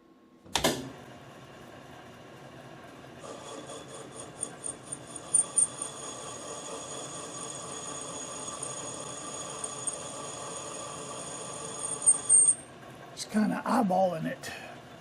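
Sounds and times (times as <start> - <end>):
metal lathe cutting whine: 3.2 - 12.7.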